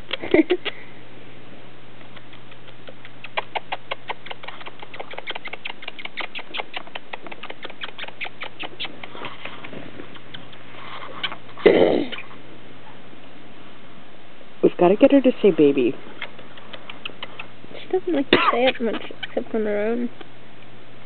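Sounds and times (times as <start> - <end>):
parrot making dry clicks: 2.0 - 11.4, 16.1 - 17.6.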